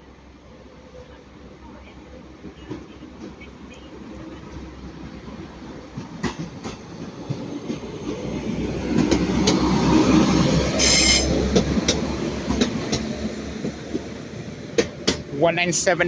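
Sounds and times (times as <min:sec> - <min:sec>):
train engine and rail rumble: 0:00.0 - 0:16.0
wheels clicking over rail joints: 0:05.8 - 0:10.0, 0:10.6 - 0:15.4
high wheel squeal: 0:10.8 - 0:11.4.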